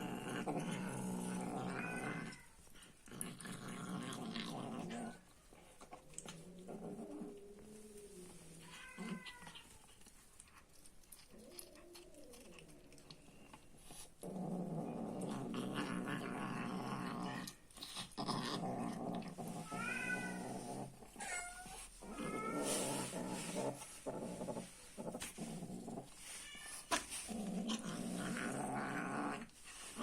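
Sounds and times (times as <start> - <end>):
cat growling: 0.0 - 30.0
cat meows and yowls: 8.6 - 9.8, 19.6 - 20.4.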